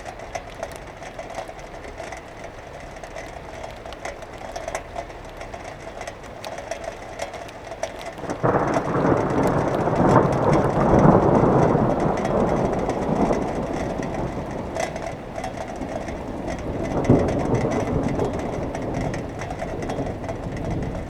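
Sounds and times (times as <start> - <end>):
rain falling: 0.0 - 21.0
thunder crack and roll: 6.5 - 21.0.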